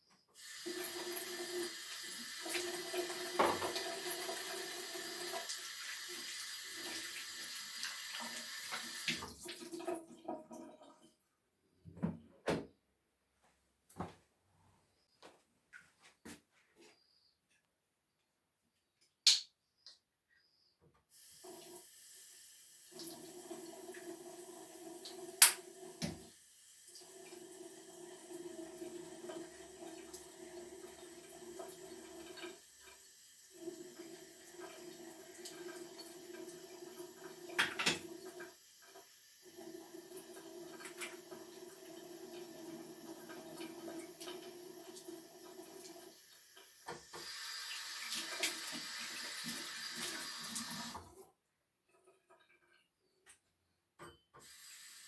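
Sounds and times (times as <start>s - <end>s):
water running from a tap: 0.4s - 10.7s, 21.2s - 51.1s, 54.4s - 55.0s.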